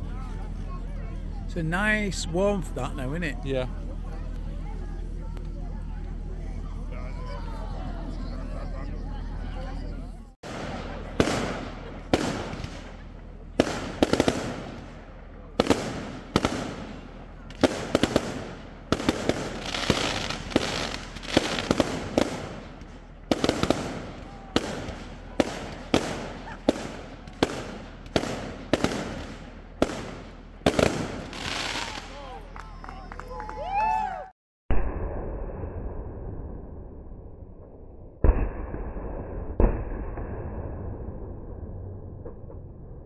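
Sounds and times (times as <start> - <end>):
fireworks banging: 10.4 - 32.7
fireworks crackling and fizzing: 10.4 - 33.4.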